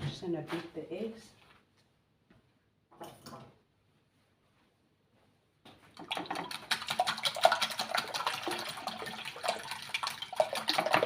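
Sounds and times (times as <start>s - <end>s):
utensil beating eggs in bowl: 6.0s - 11.0s.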